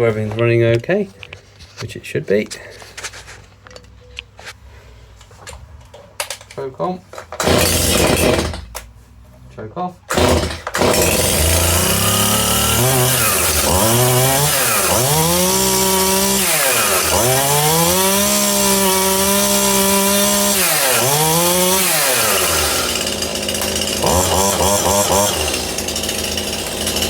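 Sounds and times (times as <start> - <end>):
chainsaw engine revving: 7.4 - 8.7, 10.1 - 27.0.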